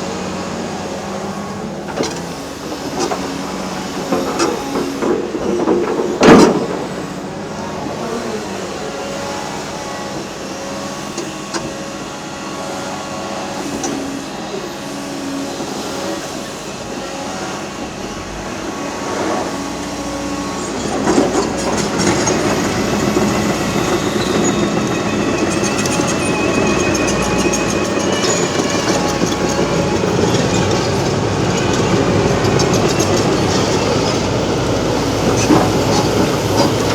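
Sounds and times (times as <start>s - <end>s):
excavator engine and hydraulic whine: 0.0s - 36.9s
rattling and clanking: 19.2s - 36.9s.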